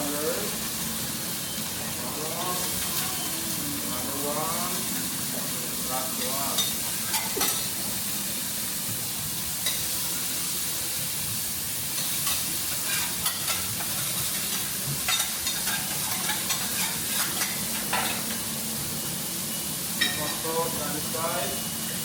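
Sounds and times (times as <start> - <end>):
food sizzling on a griddle: 0.0 - 22.0
metal utensils clicking on griddle: 12.0 - 18.4.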